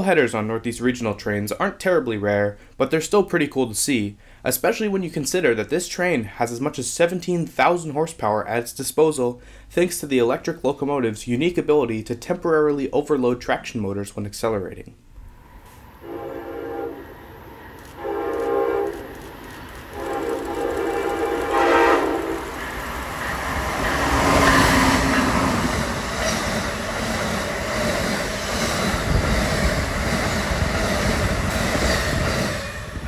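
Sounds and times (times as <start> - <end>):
wheel-on-rail noise: 15.4 - 33.0
train horn blasts: 16.0 - 19.1, 19.9 - 22.6.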